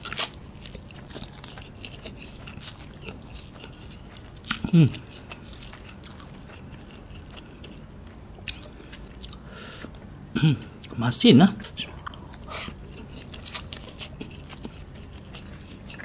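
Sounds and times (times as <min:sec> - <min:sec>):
wet chewing of noodles: 0:00.0 - 0:10.0, 0:11.6 - 0:16.0
person grunting mm: 0:04.6 - 0:05.0, 0:10.4 - 0:10.7.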